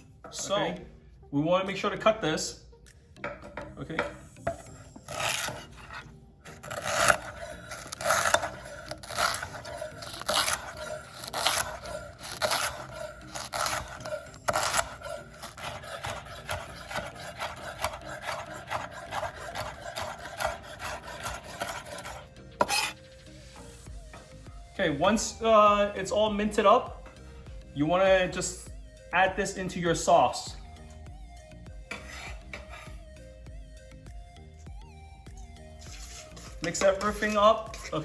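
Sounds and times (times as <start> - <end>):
knife chopping on cutting board: 6.6 - 23.0.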